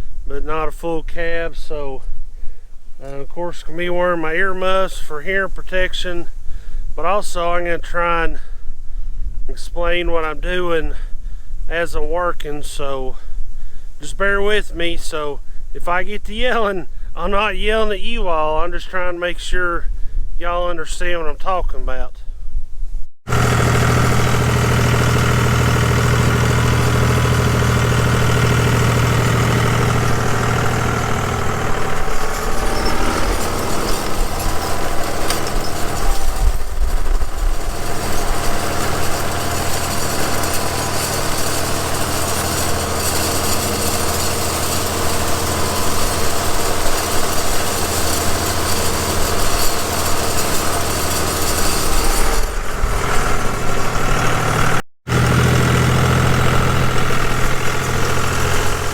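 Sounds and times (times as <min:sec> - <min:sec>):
tractor diesel engine running: 0:23.3 - 0:58.9.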